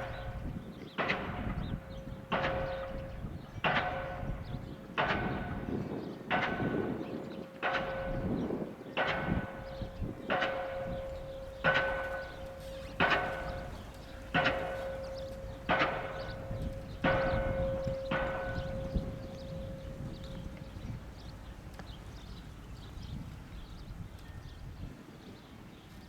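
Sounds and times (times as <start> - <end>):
pile hammer clanging on steel: 11.6 - 17.4.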